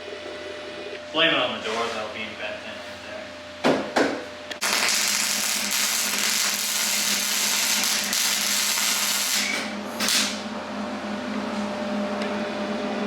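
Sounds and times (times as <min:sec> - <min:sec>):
power tool on sheet metal: 0:04.6 - 0:10.4.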